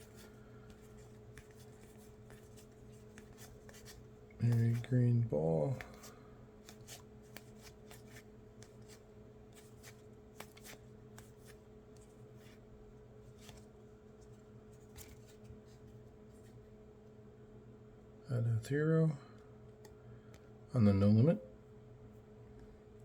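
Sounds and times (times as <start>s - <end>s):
trading cards clicking and rustling: 0.0s - 12.6s, 13.3s - 13.7s
faint steady hum: 0.0s - 23.0s.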